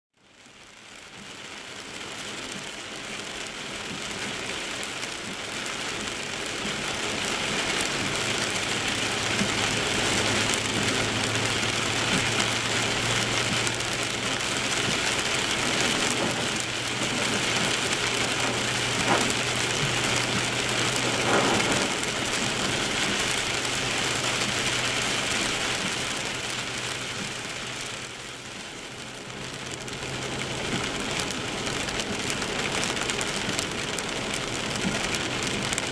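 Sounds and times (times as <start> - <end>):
heavy rain: 0.2 - 35.9
tyre spray hissing on wet road: 0.5 - 35.9
car low hum: 7.5 - 35.8.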